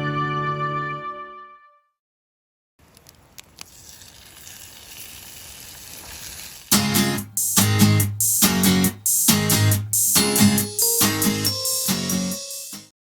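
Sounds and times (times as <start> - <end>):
strummed acoustic guitar chords: 6.7 - 12.9.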